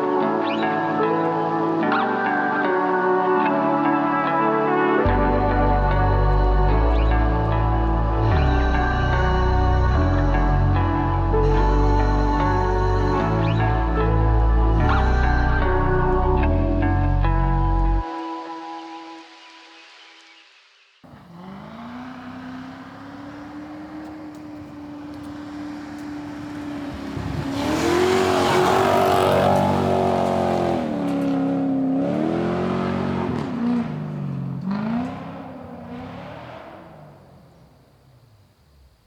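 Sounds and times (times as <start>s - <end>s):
car engine accelerating hard: 21.0s - 38.7s.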